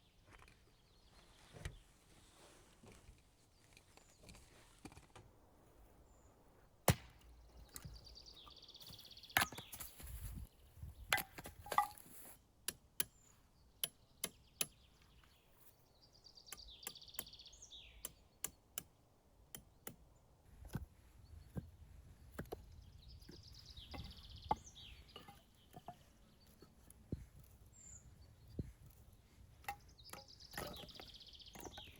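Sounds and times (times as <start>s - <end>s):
chopping knocks: 6.9s - 7.2s.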